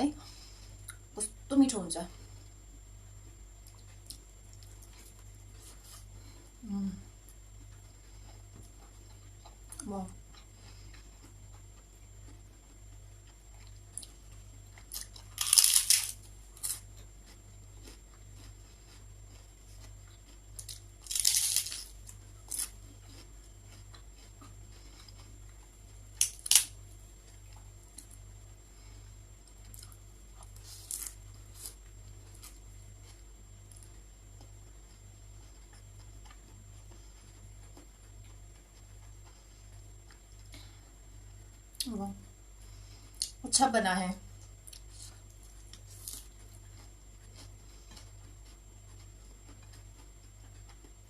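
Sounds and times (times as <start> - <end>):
faint electrical hum: 0.0 - 51.0
crunching of crisp chips: 13.6 - 28.2, 29.4 - 34.6, 44.6 - 50.9.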